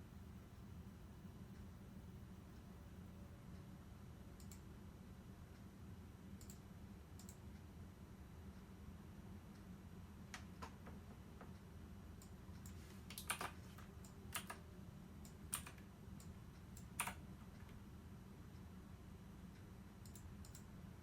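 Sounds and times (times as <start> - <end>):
low steady hum: 0.0 - 21.0
small sharp clicks: 4.4 - 4.6, 6.4 - 6.6, 7.2 - 7.4, 20.0 - 20.7.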